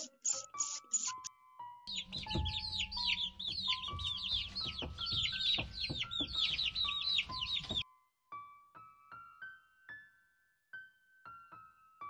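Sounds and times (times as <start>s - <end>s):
chicks peeping: 0.0s - 1.3s, 1.9s - 7.8s
piano notes: 1.9s - 7.8s.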